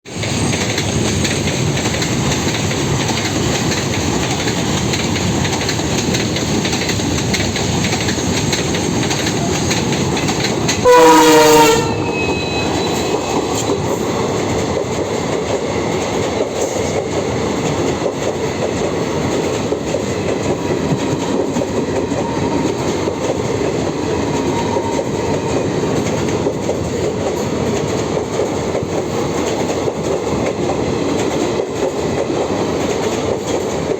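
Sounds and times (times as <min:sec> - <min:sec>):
train wheels clattering on rails: 0:00.1 - 0:33.9
train horn blast: 0:10.8 - 0:13.2.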